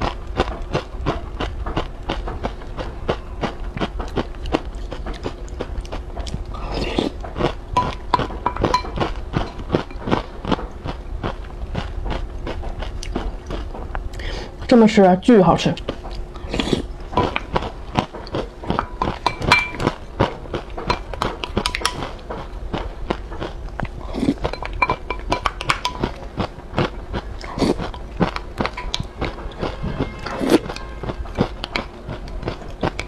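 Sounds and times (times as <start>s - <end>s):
wet crunching and chewing: 0.0s - 14.9s, 15.6s - 33.0s
spoon clinking in glass bowl: 18.9s - 19.9s, 24.5s - 26.0s.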